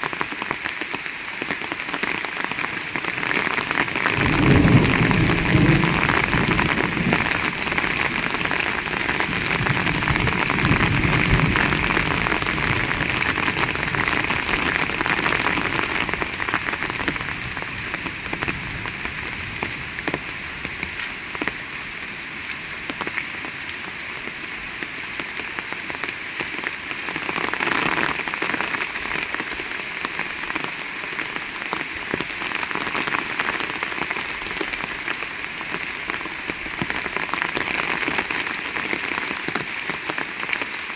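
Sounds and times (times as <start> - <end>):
heavy rain falling: 0.0 - 40.9
low thunder rumble: 4.0 - 20.9.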